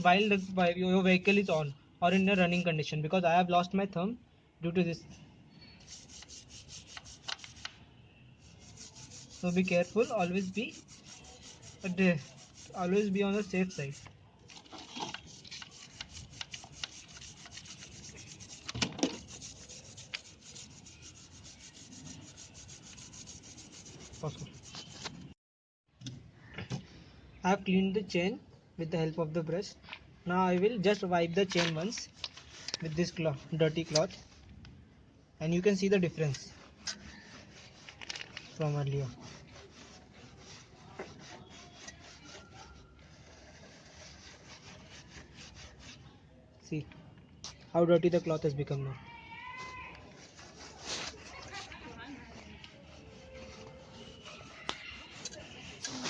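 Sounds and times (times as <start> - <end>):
brush scrubbing a chain: 5.8 - 7.7, 8.4 - 25.3, 30.9 - 34.4, 35.6 - 46.1, 49.4 - 56.0.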